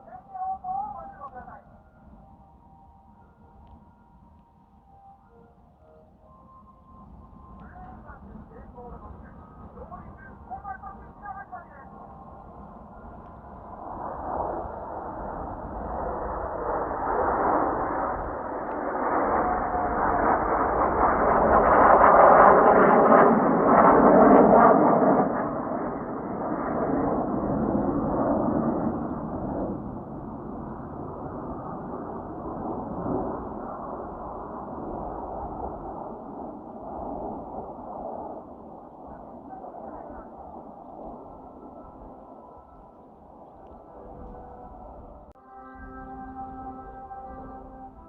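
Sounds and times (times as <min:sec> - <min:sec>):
jet aircraft roar: 0:00.0 - 0:48.0.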